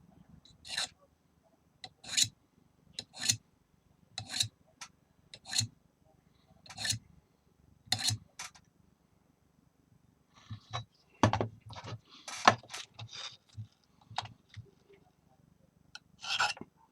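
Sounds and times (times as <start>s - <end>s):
file scraping strokes: 0.7s - 0.9s, 2.0s - 2.3s, 3.0s - 3.4s, 4.2s - 4.5s, 5.4s - 5.7s, 6.7s - 7.0s, 16.2s - 16.6s.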